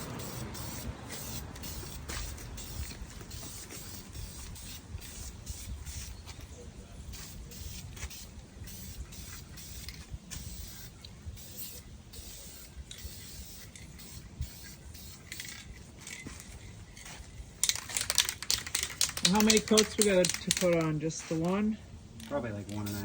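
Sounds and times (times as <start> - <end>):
aerosol spray can hissing: 0.0 - 6.2, 7.1 - 15.3.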